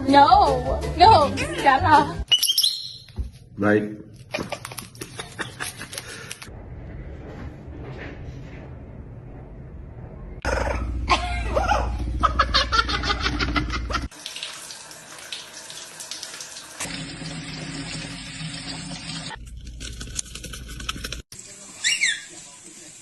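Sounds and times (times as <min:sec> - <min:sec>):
bird squawking and chirping: 0:02.3 - 0:03.1, 0:21.8 - 0:22.3.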